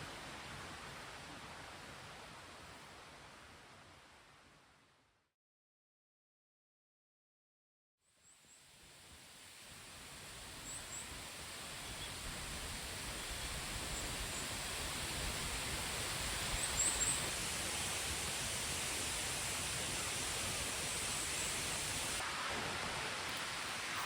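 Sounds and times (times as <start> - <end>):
small stream babbling: 9.6 - 24.0.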